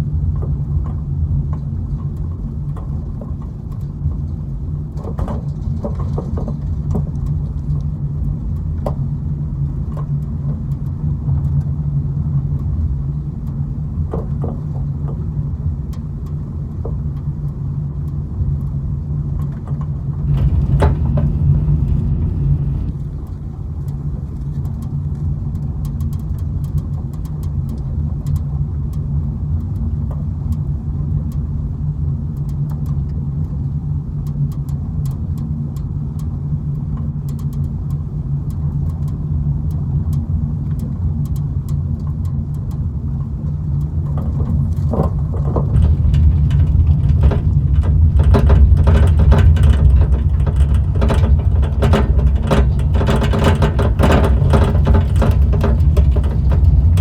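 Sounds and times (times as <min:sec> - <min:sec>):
car engine and road noise: 0:00.2 - 0:32.2, 0:33.2 - 0:57.0
small clicks and rattles: 0:19.4 - 0:29.0, 0:36.9 - 0:57.0.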